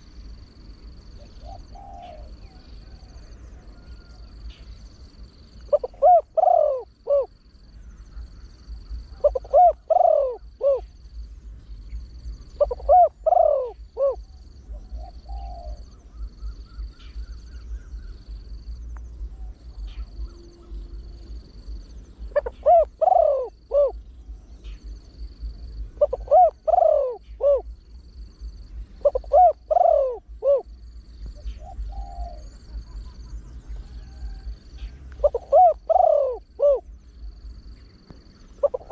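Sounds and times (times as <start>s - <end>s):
dove cooing: 1.1s - 4.8s, 5.5s - 11.0s, 11.8s - 18.4s, 19.2s - 38.9s
faint pulsed high tone: 13.6s - 38.7s.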